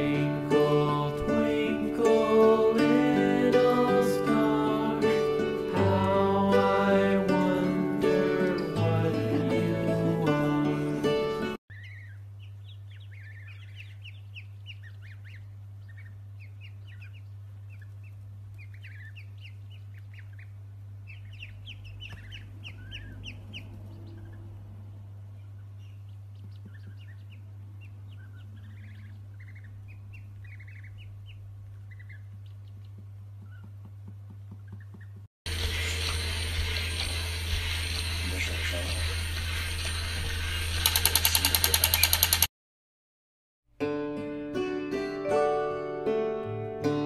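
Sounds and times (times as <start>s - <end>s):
ducklings peeping: 0.0s - 42.5s
steady low hum: 11.7s - 41.2s.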